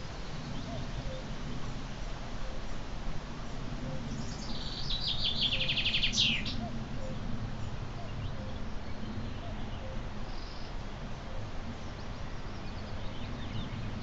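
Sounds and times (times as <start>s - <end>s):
songbird singing trill: 0.0s - 1.7s, 3.8s - 14.0s.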